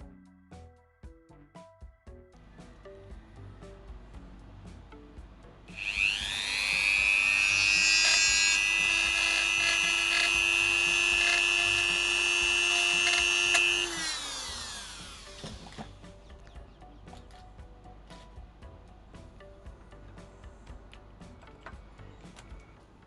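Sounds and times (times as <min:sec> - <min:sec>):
mini drill whining: 0:05.7 - 0:16.0.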